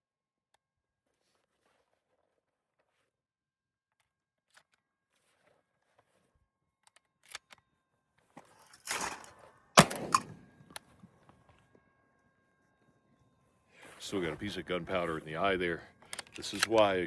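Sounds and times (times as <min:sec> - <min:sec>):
shotgun shot: 0:09.8 - 0:10.4.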